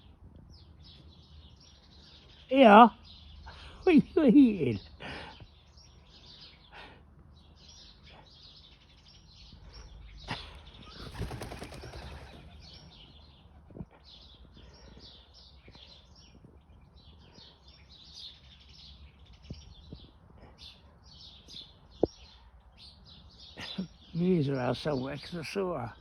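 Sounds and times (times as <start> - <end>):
birds chirping: 0.0 - 26.0
wings flapping: 10.8 - 12.7.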